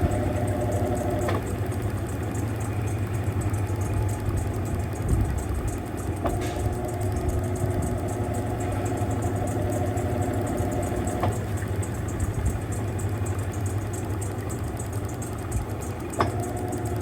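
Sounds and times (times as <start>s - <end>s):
click: 0.0s - 17.0s
washing machine motor hum: 0.0s - 17.0s.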